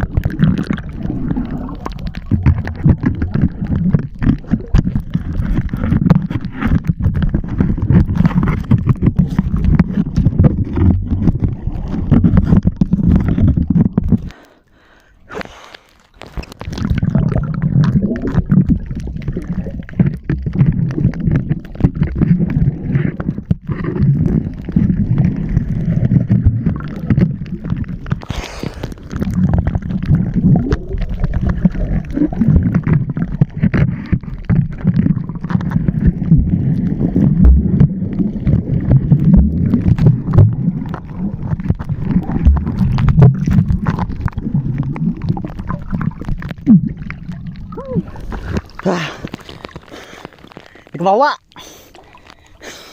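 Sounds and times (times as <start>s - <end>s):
water rushing: 0.0s - 6.0s
underwater knocks: 0.0s - 14.3s, 16.6s - 28.2s, 29.0s - 48.8s
underwater rumble and gurgle: 0.0s - 52.9s.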